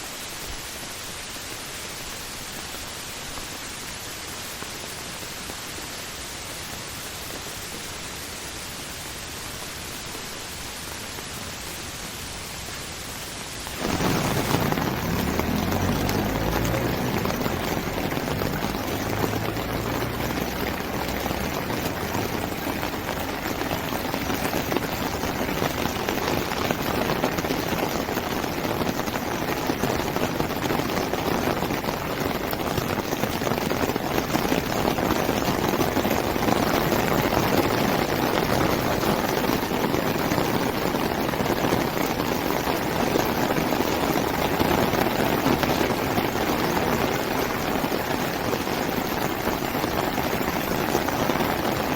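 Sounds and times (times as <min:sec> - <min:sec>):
heavy rain: 0:00.0 - 0:51.9
running water: 0:13.6 - 0:51.9
low rumble: 0:13.7 - 0:24.8.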